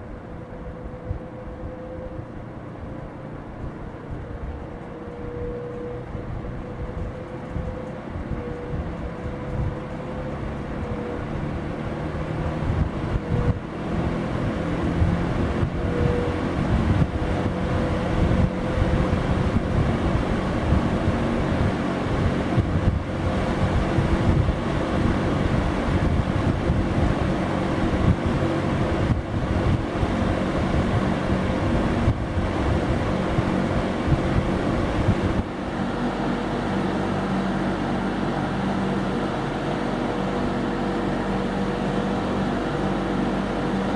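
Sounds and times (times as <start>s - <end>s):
air buffeting microphone: 0.0s - 43.9s
box fan running: 0.0s - 43.9s.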